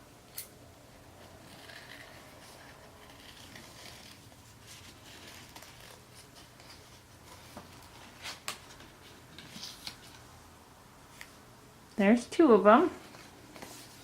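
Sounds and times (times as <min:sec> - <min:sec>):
paper rustling: 0:01.4 - 0:10.3, 0:13.0 - 0:14.0.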